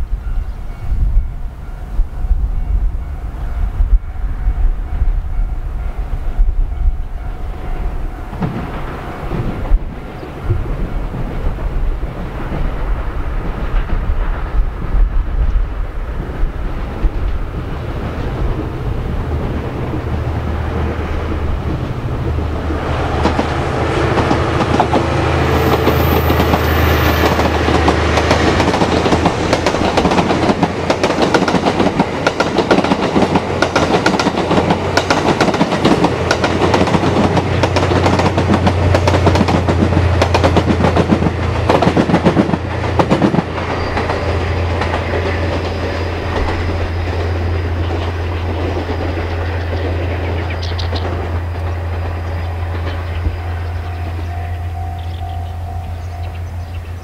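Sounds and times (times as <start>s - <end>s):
train rumbling: 0.0s - 57.0s
wheels clattering over rail joints: 16.8s - 54.3s.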